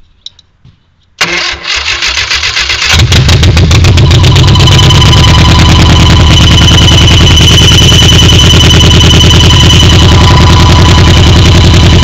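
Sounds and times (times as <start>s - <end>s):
car engine starting and running: 1.2s - 12.0s
high-pitched whine: 3.1s - 12.0s.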